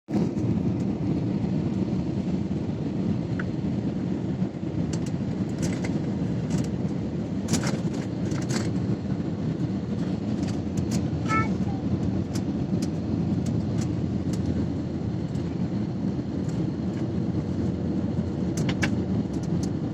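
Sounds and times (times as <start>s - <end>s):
airliner landing rumble: 0.1s - 19.9s
sharp clicks and rattles: 4.9s - 8.9s, 9.9s - 14.6s, 18.5s - 19.8s.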